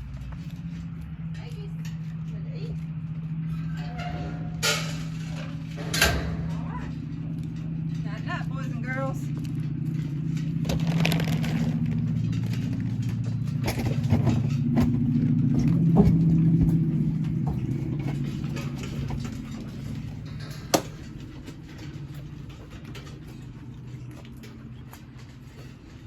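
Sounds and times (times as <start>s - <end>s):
vehicle engine humming: 0.0s - 26.0s
rattling clicks: 3.2s - 8.1s.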